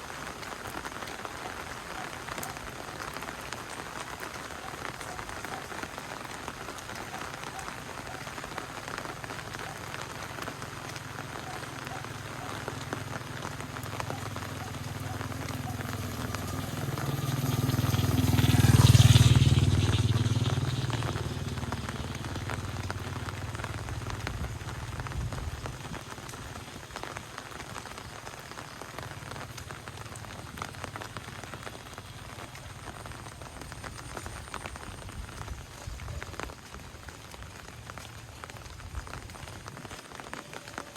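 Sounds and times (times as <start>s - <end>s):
steady rain: 0.0s - 40.9s
vehicle engine passing: 14.2s - 24.2s.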